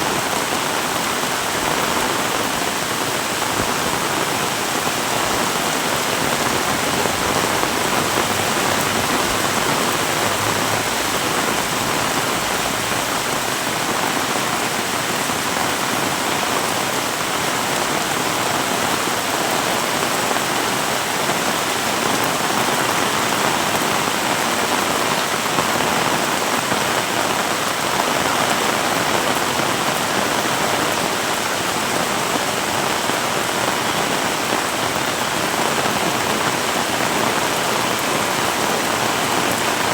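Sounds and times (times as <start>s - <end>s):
heavy rain splashing: 0.0s - 39.9s.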